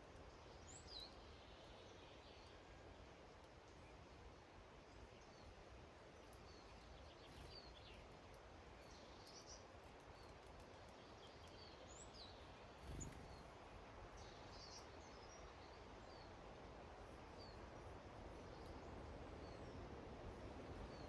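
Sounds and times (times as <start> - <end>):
steady outdoor hiss: 0.0 - 21.0
songbirds chirping: 5.0 - 21.0.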